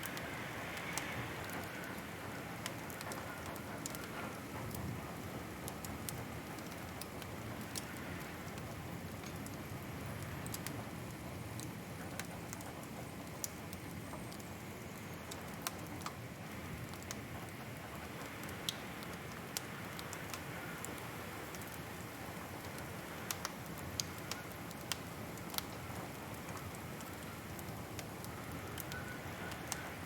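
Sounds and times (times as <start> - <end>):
wood fire pops and snaps: 22.6 - 29.8.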